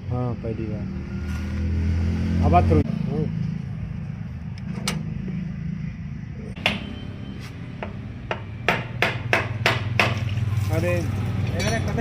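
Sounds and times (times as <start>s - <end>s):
sharp metallic taps: 6.6s - 7.0s, 7.8s - 10.2s.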